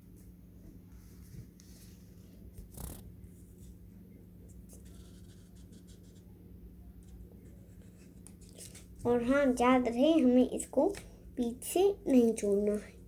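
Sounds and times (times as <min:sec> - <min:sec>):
marker scratching on paper: 0:04.7 - 0:06.3.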